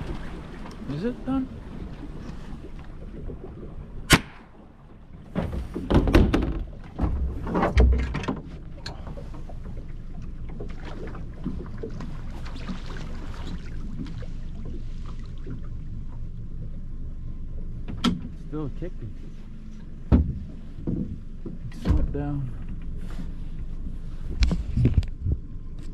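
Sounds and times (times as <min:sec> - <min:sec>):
wind and water rumble: 0:00.0 - 0:25.9
sharp crack: 0:04.0 - 0:04.7
knocks and thuds: 0:05.3 - 0:08.6, 0:20.1 - 0:21.2, 0:21.8 - 0:22.2.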